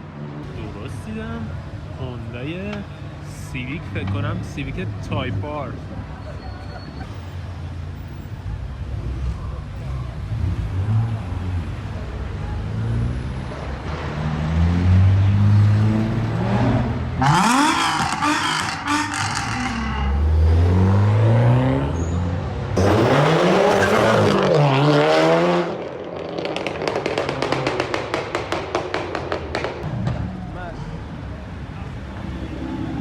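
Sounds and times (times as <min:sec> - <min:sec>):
sports car engines revving: 0:00.3 - 0:06.3, 0:07.1 - 0:33.0
sharp exhaust pops: 0:26.2 - 0:30.2.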